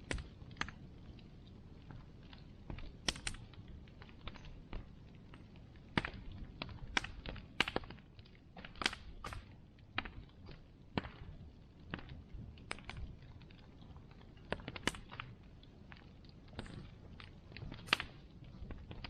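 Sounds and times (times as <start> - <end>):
bonfire crackling and popping: 0.0 - 19.0
low rush of burning fire: 0.0 - 19.0.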